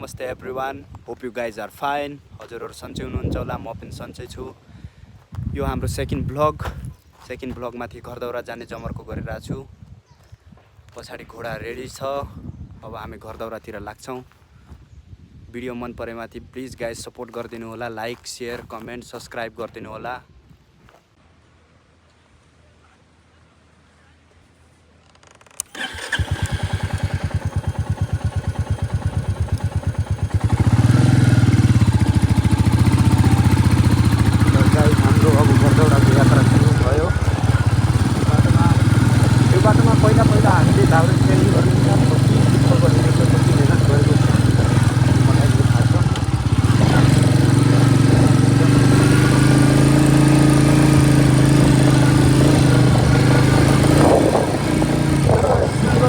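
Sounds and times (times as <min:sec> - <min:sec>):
motorcycle engine thumping: 0:25.6 - 0:56.0.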